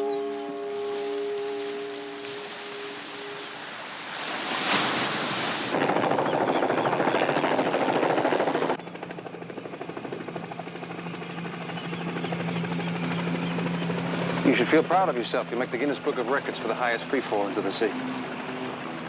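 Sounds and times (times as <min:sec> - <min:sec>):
helicopter rotor chopping: 0:05.7 - 0:19.0
low engine hum: 0:08.7 - 0:19.0.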